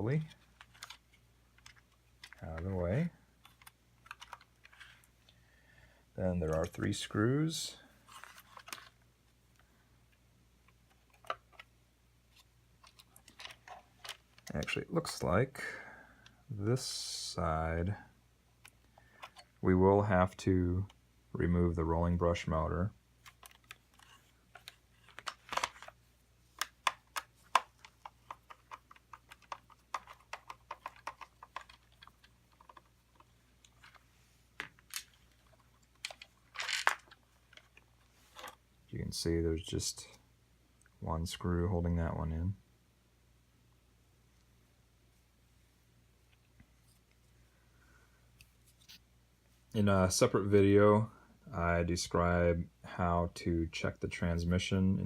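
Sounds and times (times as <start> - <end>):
plastic parts clicking: 0.2 - 2.7, 3.4 - 5.4, 12.8 - 14.8, 18.6 - 19.6, 23.2 - 34.0, 34.6 - 38.6.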